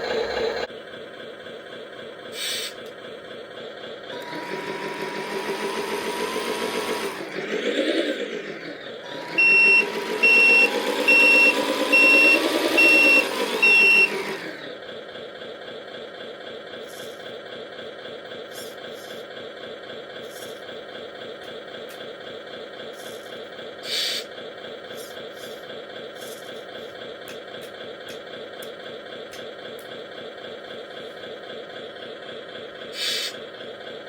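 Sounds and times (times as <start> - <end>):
simulated diesel engine revving: 0.0 - 34.0
reversing alarm beeps: 9.3 - 14.3.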